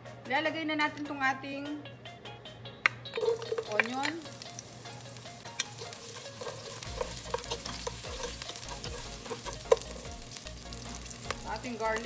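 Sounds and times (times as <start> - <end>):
utensil clicking against pan: 3.1 - 4.4, 5.5 - 12.0
onion sizzling in oil: 3.2 - 12.0.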